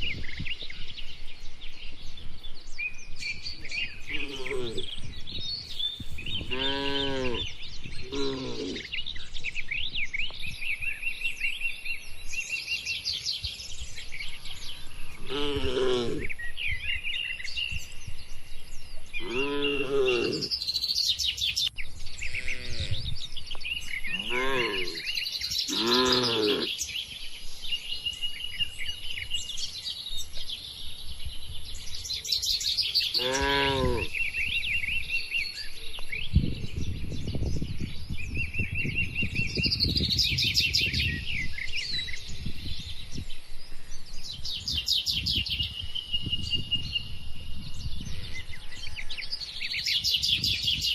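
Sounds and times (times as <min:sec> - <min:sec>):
small birds chirping: 0:00.0 - 0:50.9
cattle mooing: 0:04.1 - 0:04.9, 0:06.5 - 0:08.9, 0:15.2 - 0:16.3, 0:19.2 - 0:20.5, 0:22.3 - 0:23.0, 0:24.1 - 0:25.1, 0:25.7 - 0:26.7, 0:33.2 - 0:34.1.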